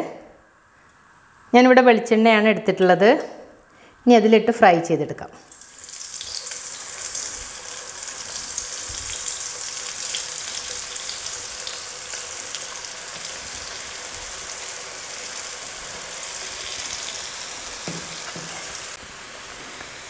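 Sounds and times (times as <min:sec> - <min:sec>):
bread frying in hot oil: 0:05.5 - 0:20.0.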